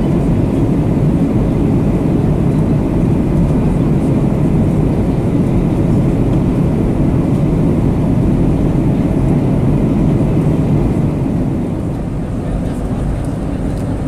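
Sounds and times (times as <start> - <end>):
airplane cabin rushing noise: 0.0 - 14.0.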